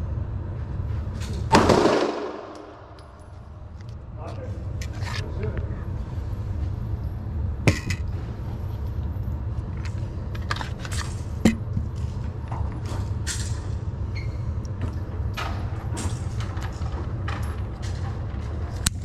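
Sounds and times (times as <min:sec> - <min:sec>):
steady low rumble: 0:00.0 - 0:19.0
sharp gunshots: 0:01.5 - 0:02.6.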